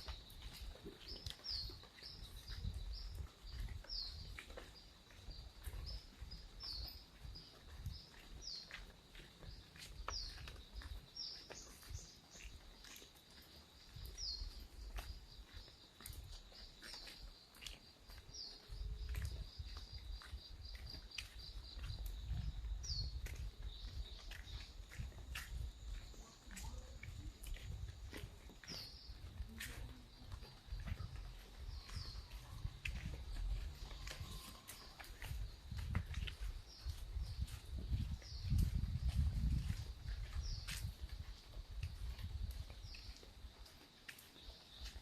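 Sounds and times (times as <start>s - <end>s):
bird chirping: 26.1s - 35.5s.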